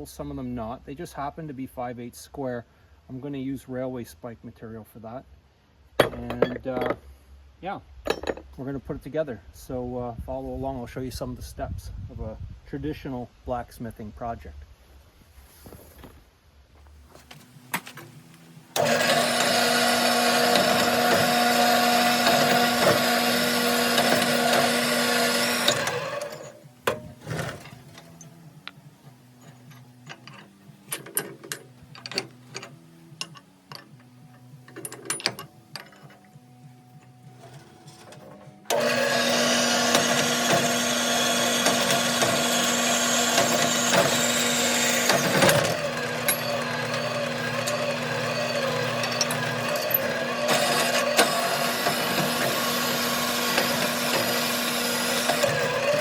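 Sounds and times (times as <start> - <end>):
sharp metal knocks: 6.0 - 7.0
power tool motor running: 18.7 - 28.3, 38.7 - 56.0.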